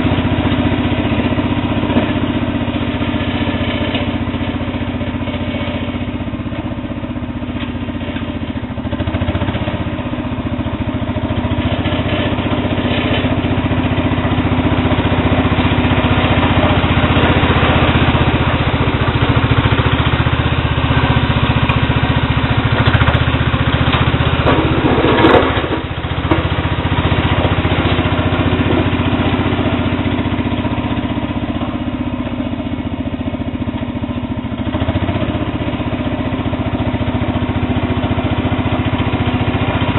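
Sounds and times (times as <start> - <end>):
garden tractor engine running: 0.0 - 39.9
scraping clatter: 21.0 - 30.3.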